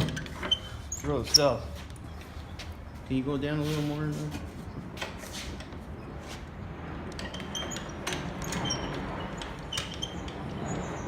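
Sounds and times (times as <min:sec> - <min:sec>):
short high squeaks: 0:00.0 - 0:02.6, 0:07.2 - 0:11.0.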